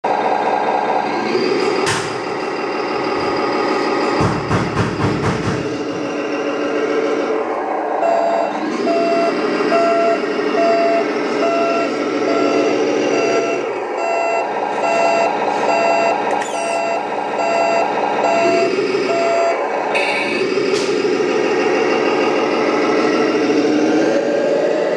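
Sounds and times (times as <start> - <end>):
toy truck engine running: 5.8 - 24.9
reversing beeper: 8.0 - 20.5.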